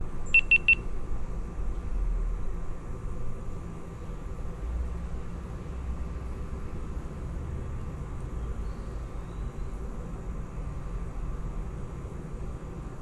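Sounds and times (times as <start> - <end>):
camera beep: 0.3 - 0.8.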